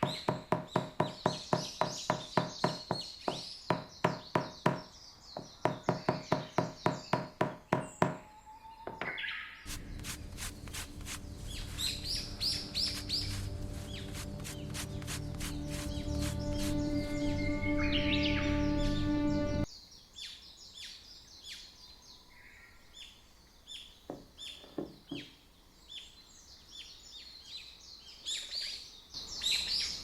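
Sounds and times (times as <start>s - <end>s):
birds chirping: 0.0s - 30.0s
music with low held tones: 9.7s - 19.7s.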